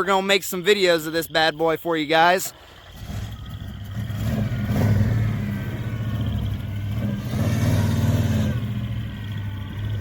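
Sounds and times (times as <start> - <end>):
pickup truck engine revving: 2.5 - 10.0.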